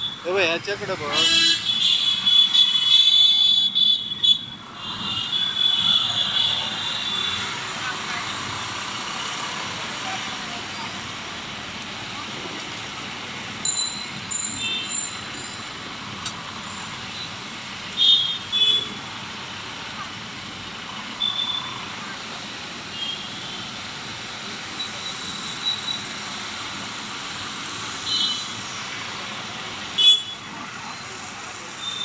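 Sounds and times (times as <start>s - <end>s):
road traffic noise: 0.0s - 32.0s.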